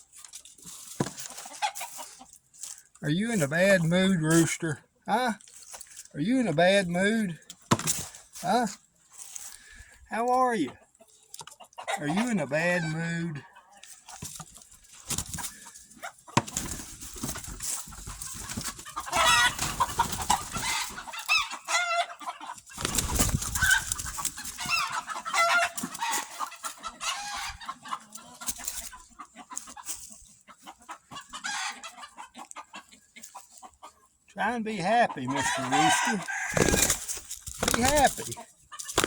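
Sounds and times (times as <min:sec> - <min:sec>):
rustling: 0:00.0 - 0:03.0, 0:07.6 - 0:10.0, 0:13.8 - 0:21.5, 0:22.6 - 0:26.8, 0:36.3 - 0:39.0
rooster clucking and calling: 0:18.4 - 0:29.9, 0:30.6 - 0:34.0, 0:35.3 - 0:38.4.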